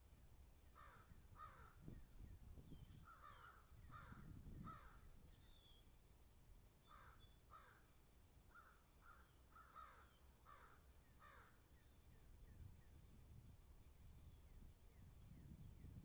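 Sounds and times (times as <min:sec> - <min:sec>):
crow cawing faintly: 0:00.7 - 0:01.9, 0:03.0 - 0:05.1, 0:06.8 - 0:07.9, 0:08.5 - 0:11.6.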